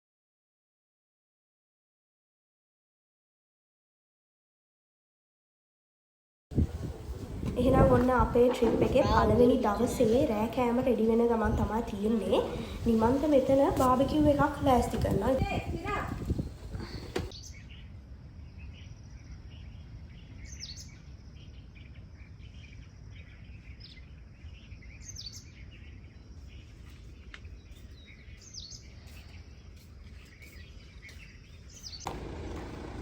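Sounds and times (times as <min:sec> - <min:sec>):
low background noise: 0:06.5 - 0:28.8
faint bird chirps: 0:15.6 - 0:32.1.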